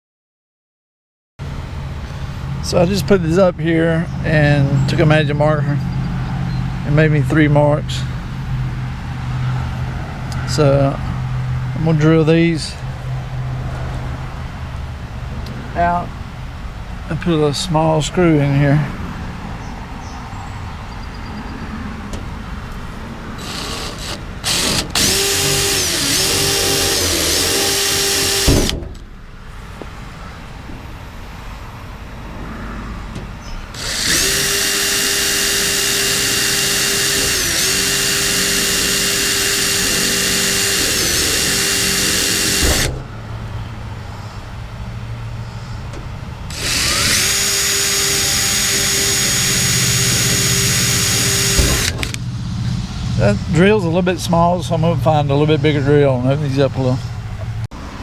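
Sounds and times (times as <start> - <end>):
electric drill whining: 23.4 - 28.7, 33.7 - 42.9, 46.5 - 52.2.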